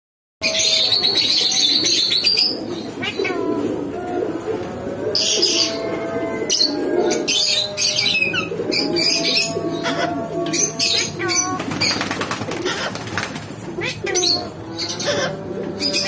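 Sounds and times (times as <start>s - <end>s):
low murmuring: 0.4s - 16.0s
parrot screeching: 5.5s - 12.0s, 12.6s - 13.0s, 13.8s - 14.4s.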